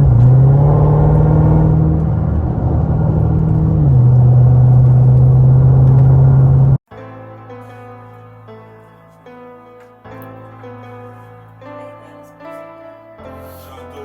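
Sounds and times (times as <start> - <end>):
car engine running at low revs: 0.0 - 6.8.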